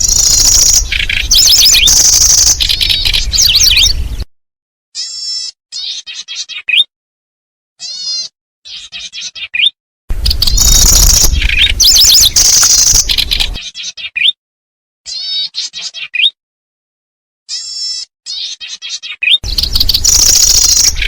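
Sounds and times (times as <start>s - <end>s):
dense overlapping bird calls: 0.0s - 4.0s, 10.3s - 14.3s, 18.4s - 21.0s
birds chirping rapidly: 0.0s - 4.3s, 7.8s - 14.4s, 17.5s - 21.0s.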